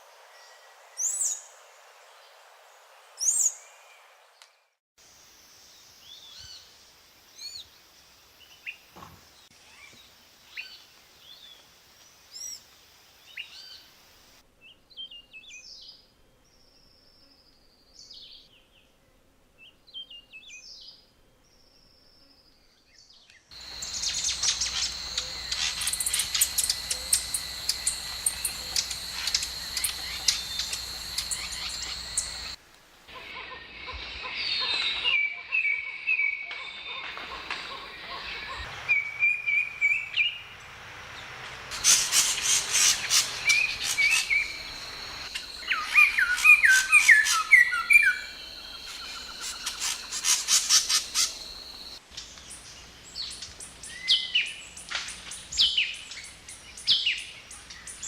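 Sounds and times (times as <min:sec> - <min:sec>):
chorus of chattering bird calls: 0:23.6 - 0:32.6, 0:41.8 - 0:52.0
short arching bird chirps: 0:23.6 - 0:32.6.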